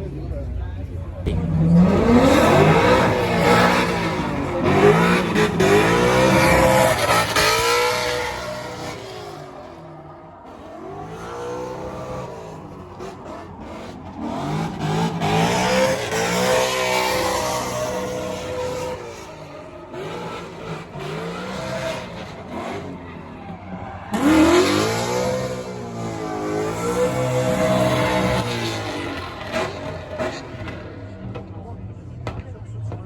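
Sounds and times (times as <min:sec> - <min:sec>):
car engines revving hard: 0:01.2 - 0:32.9.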